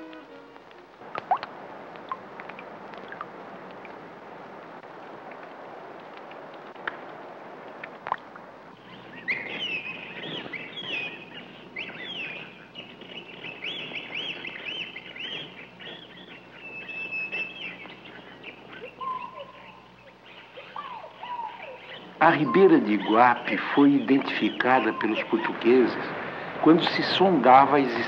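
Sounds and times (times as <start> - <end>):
birds chirping: 0.0 - 28.0
low steady bird whistle: 8.8 - 27.2.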